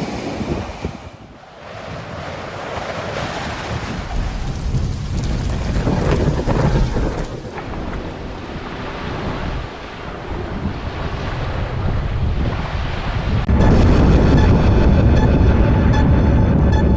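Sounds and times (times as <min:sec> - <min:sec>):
rushing ambient noise with low rumble: 0:11.5 - 0:16.9.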